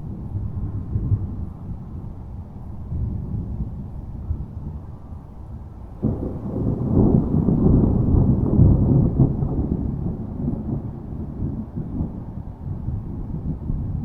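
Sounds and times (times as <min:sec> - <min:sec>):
low rolling thunder: 0:05.9 - 0:14.0.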